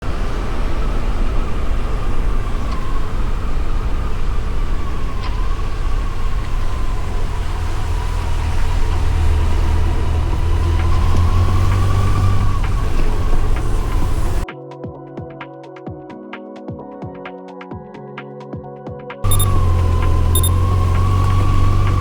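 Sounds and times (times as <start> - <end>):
motorcycle engine rumbling: 0.0 - 14.4, 19.3 - 22.0.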